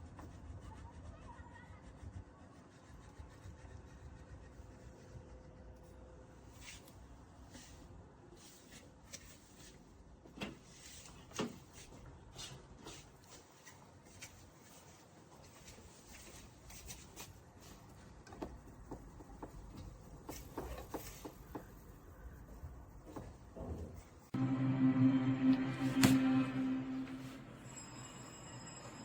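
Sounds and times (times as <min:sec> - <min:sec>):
low room noise: 0:20.6 - 0:29.0.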